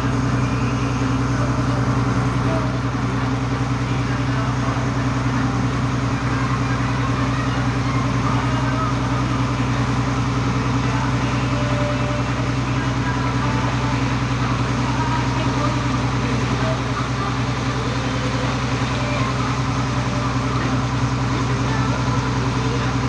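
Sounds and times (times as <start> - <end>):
ferry engine droning: 0.0 - 23.0.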